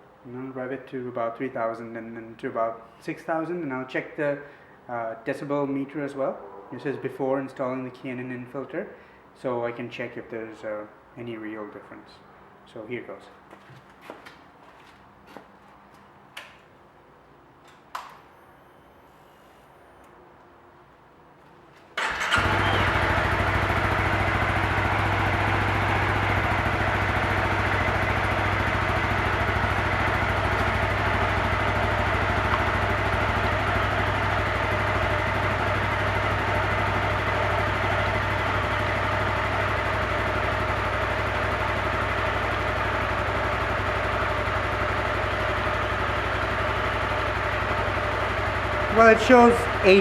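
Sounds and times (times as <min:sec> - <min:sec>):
motorcycle engine starting and idling: 0:21.8 - 0:50.0.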